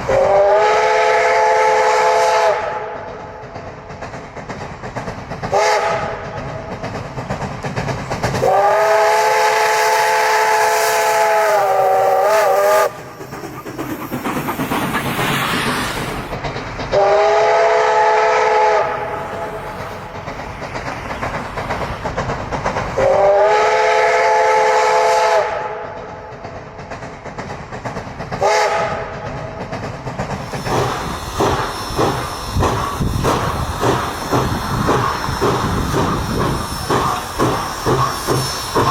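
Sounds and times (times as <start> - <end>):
steam hissing: 0.0 - 25.7, 26.5 - 38.9
rhythmic train beat: 0.0 - 38.9
steam locomotive chime whistle: 0.1 - 3.0, 5.5 - 6.2, 8.4 - 13.1, 17.0 - 19.5, 23.0 - 25.8.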